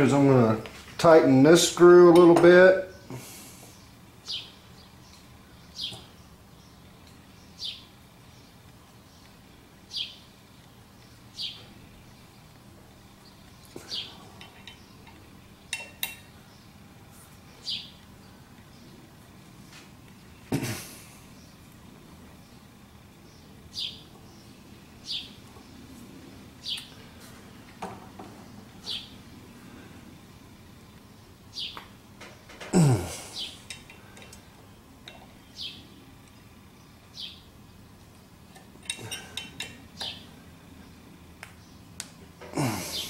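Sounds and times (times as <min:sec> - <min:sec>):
bird chirping: 0:03.7 - 0:16.8, 0:17.4 - 0:19.1, 0:21.3 - 0:25.9, 0:28.4 - 0:29.4, 0:30.8 - 0:32.0, 0:33.2 - 0:37.9.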